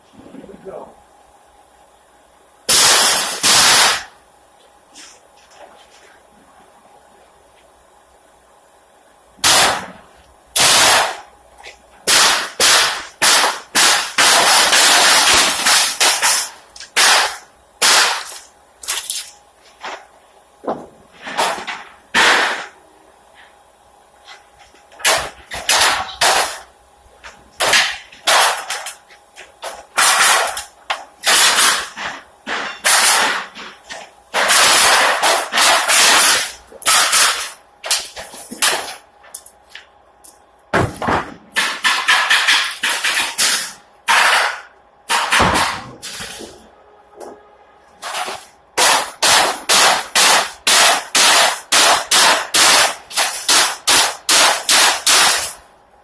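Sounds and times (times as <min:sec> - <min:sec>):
bangs on wooden pallet: 0:20.6 - 0:22.8, 0:29.6 - 0:39.0, 0:40.7 - 0:46.6.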